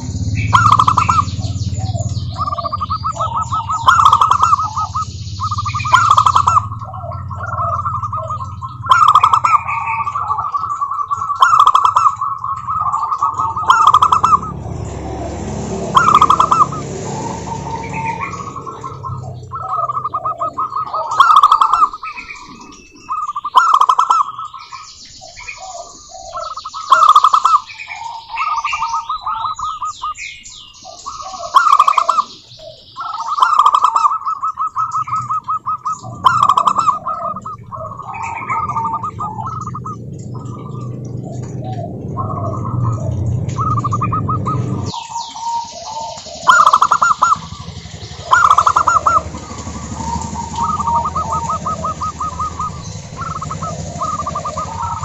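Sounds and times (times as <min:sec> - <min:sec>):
low steady hum: 0:00.0 - 0:23.4, 0:34.8 - 0:55.0
doves cooing: 0:00.0 - 0:55.0.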